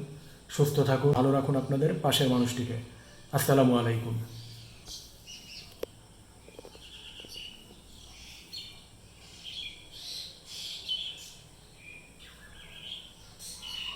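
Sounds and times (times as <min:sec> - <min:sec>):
small birds chirping: 0:02.2 - 0:13.9.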